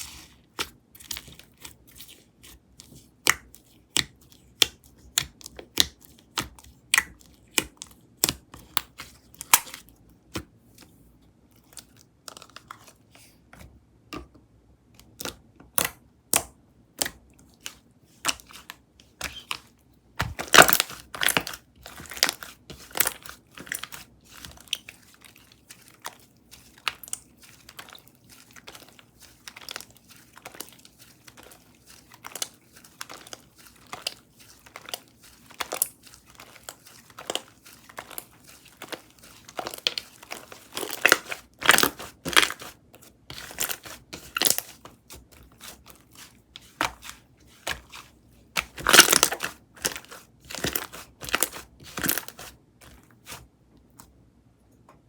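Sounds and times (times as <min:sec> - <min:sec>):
slime crackling: 0:17.6 - 0:52.5.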